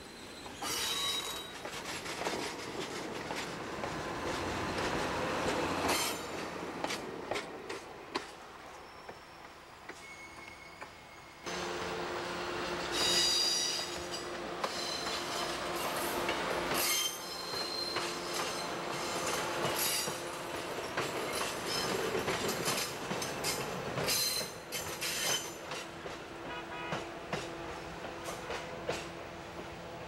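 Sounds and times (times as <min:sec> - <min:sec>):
high-pitched wheel squeals: 0:00.1 - 0:01.6, 0:08.8 - 0:11.5, 0:12.9 - 0:16.0, 0:16.7 - 0:18.8
wheels clicking over rail joints: 0:00.5 - 0:08.4, 0:12.8 - 0:26.4.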